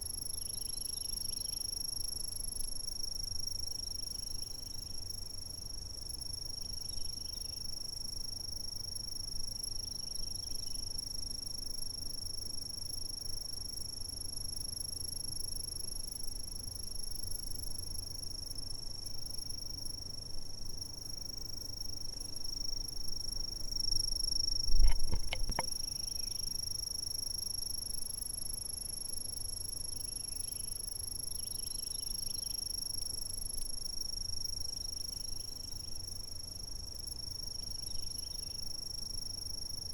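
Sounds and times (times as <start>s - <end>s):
insects trilling: 0.0s - 2.4s, 3.0s - 39.9s
sharp clicks or knocks: 24.7s - 25.7s.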